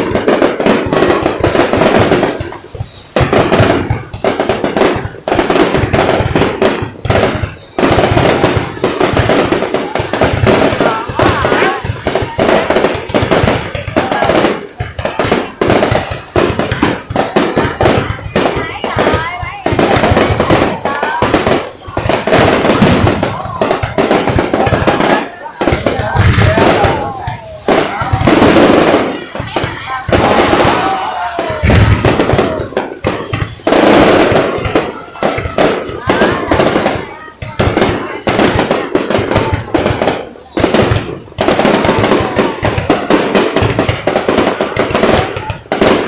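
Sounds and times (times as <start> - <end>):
fireworks bangs and crackles: 0.0 - 46.0.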